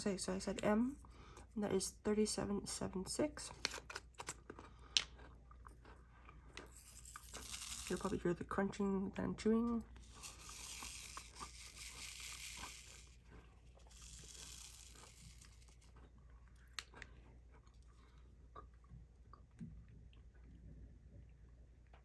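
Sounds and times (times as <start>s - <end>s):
person chewing crunchy cookie: 3.8s - 7.8s, 10.0s - 19.5s.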